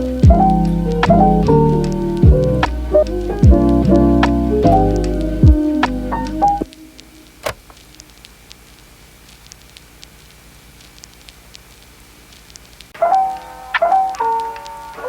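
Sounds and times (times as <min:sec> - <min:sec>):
piano music: 0:00.0 - 0:07.4, 0:13.0 - 0:15.0.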